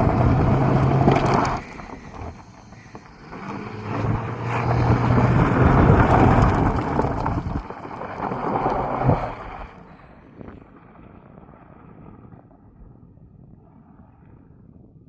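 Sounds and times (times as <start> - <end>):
car engine accelerating: 0.0 - 9.9
road noise: 0.0 - 10.4
wind buffeting microphone: 0.0 - 15.0.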